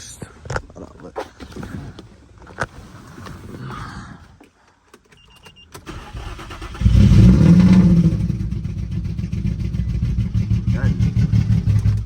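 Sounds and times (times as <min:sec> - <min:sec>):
car engine starting and idling: 0:04.9 - 0:12.0.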